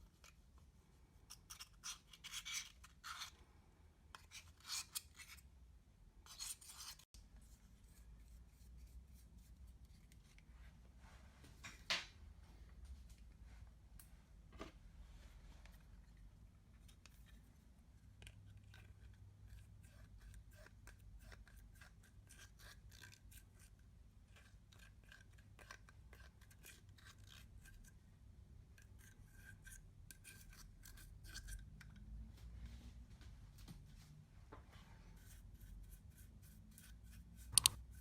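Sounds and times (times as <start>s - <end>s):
slime clicks and scrapes: 37.4s - 37.8s.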